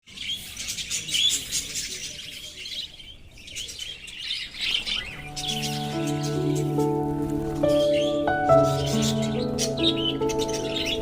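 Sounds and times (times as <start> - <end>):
budgerigars chirping: 0.1 - 11.0
background music: 5.0 - 11.0.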